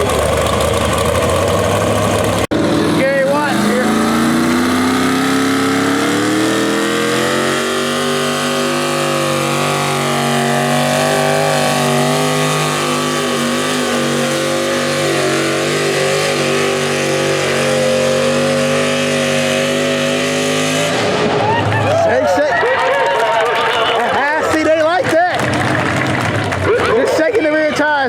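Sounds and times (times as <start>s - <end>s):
tractor engine at full throttle: 0.0s - 28.0s.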